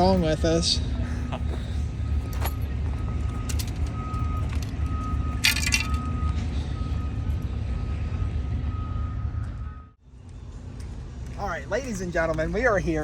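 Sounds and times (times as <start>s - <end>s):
backup alarm beeping: 0.0s - 10.0s
heavy vehicle engine rumbling: 0.0s - 13.0s.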